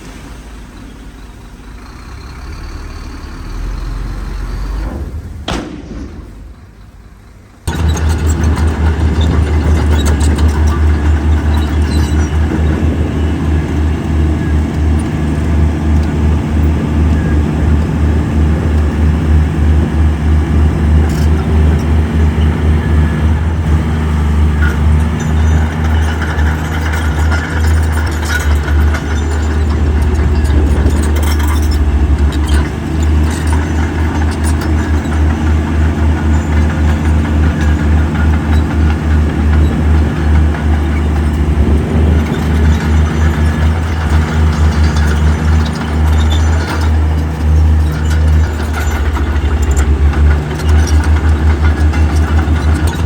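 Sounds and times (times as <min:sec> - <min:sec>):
heavy diesel engine running: 0:00.0 - 0:53.0
sharp knocks: 0:04.8 - 0:06.8.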